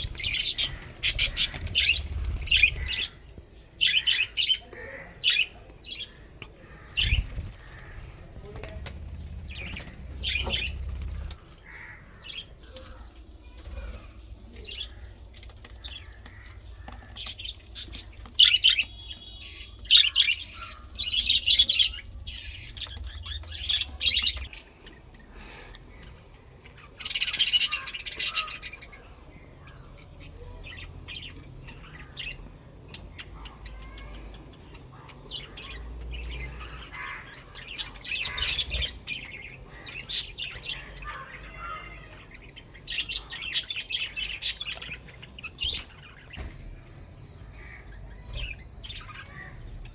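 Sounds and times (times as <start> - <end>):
budgerigars chirping: 0.0 - 3.2, 3.8 - 12.5, 15.8 - 24.6, 26.8 - 29.0, 35.4 - 41.9.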